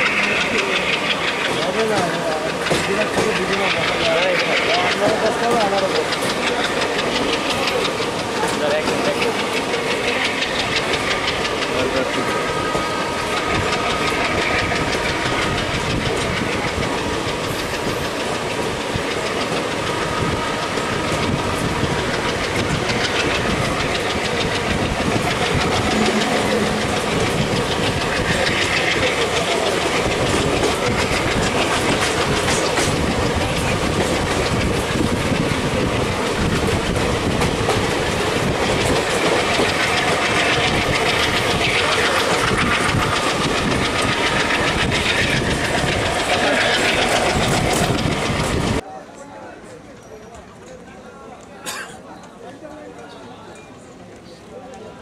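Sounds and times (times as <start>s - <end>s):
train running rumble: 0.0s - 48.8s
passing local train: 0.0s - 55.0s.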